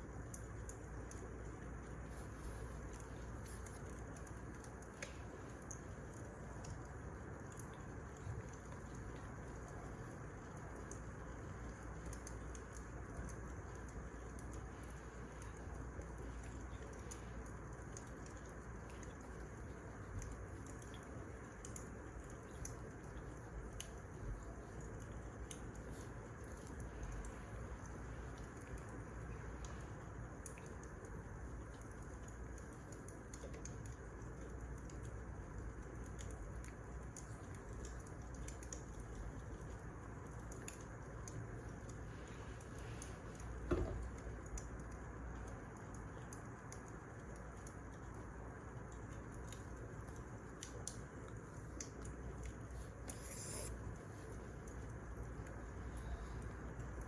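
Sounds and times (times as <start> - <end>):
fire popping and snapping: 0.1 - 57.0
burning logs hissing: 52.7 - 54.2.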